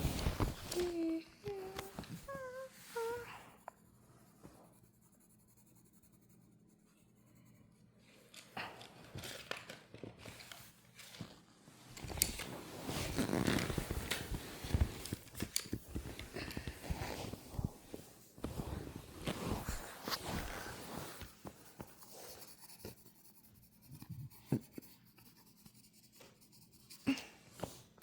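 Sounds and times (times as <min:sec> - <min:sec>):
scratchy coloring strokes on paper: 0:00.8 - 0:07.9, 0:15.9 - 0:27.8.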